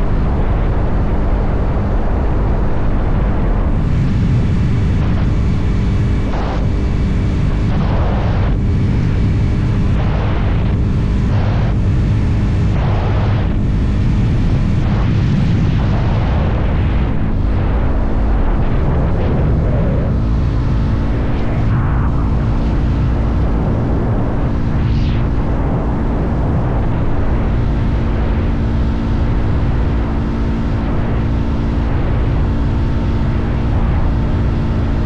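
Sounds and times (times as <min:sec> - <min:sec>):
wind buffeting microphone: 0:00.0 - 0:35.0
motorcycle engine cruising: 0:00.1 - 0:15.0.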